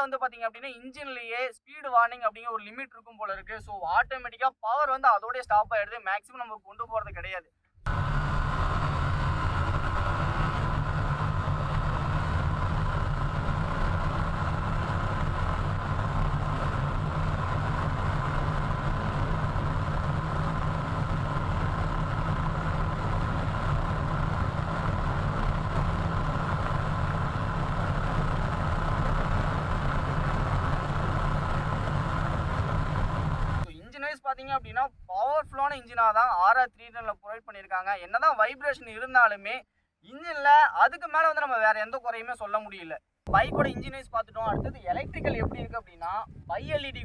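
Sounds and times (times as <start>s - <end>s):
motorcycle engine running: 7.9s - 33.7s
wind buffeting microphone: 43.3s - 47.0s.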